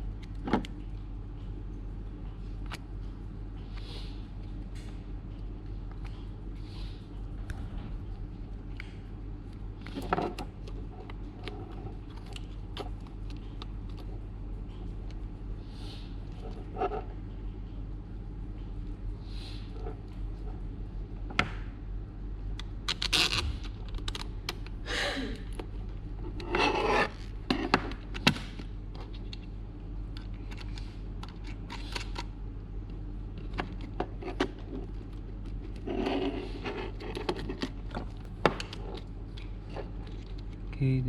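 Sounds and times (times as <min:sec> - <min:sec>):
steady low hum: 0:00.0 - 0:41.0
tool scraping: 0:26.2 - 0:27.8.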